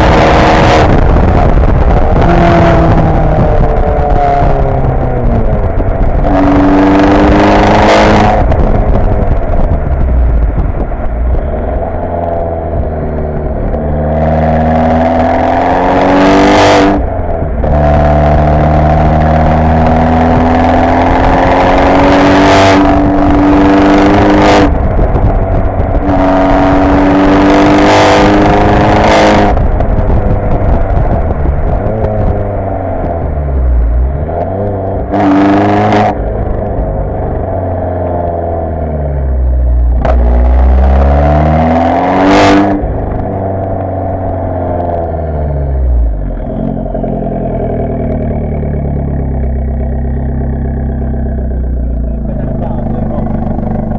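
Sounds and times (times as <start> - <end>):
car engine revving: 0.0 - 53.9
engine idling: 45.2 - 53.9.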